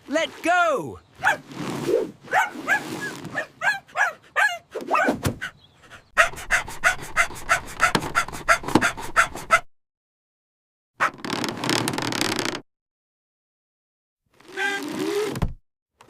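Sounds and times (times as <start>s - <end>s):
dog barking and yipping: 1.2s - 1.5s, 2.2s - 9.7s.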